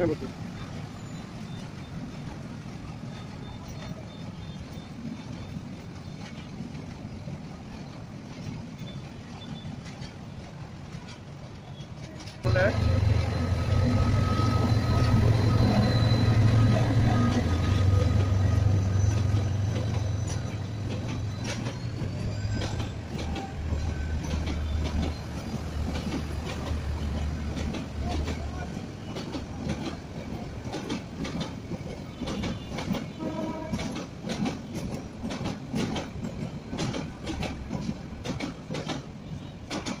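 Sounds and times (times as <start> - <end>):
train wheels clicking over rail joints: 0.2 - 40.0
locomotive engine drone: 12.4 - 28.6
high wheel squeals: 12.5 - 29.2.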